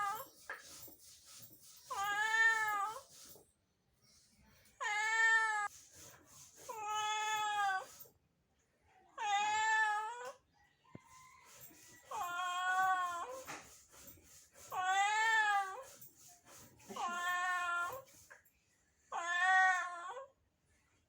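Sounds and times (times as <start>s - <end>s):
cat meowing: 19.2s - 20.3s.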